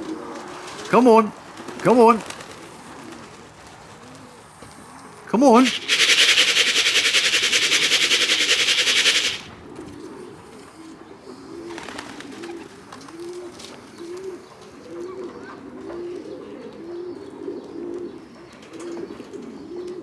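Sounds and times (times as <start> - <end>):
pigeons cooing: 0.0 - 20.0
loud rushing noise: 5.5 - 9.5.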